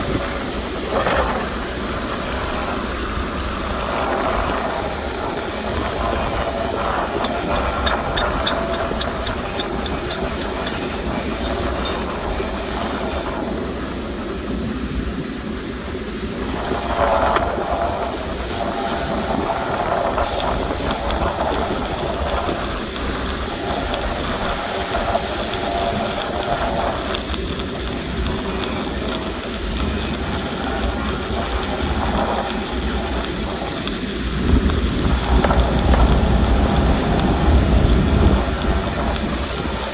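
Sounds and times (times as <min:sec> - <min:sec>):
welding arc crackling: 0:05.4 - 0:13.0, 0:20.1 - 0:39.9.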